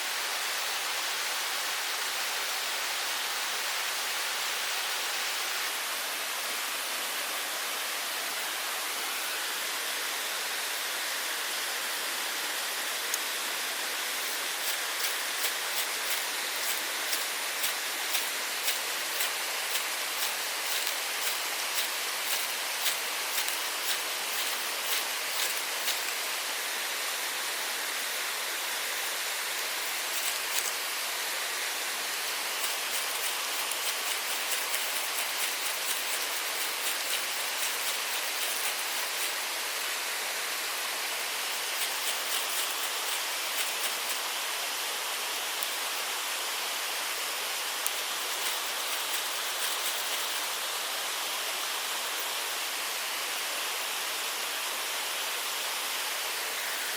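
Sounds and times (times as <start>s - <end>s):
mountain stream flowing: 0.0s - 56.9s.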